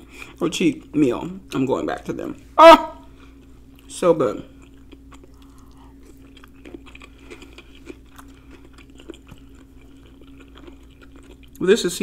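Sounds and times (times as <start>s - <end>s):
faint steady hum: 0.0s - 12.0s
chewing food: 3.2s - 12.0s.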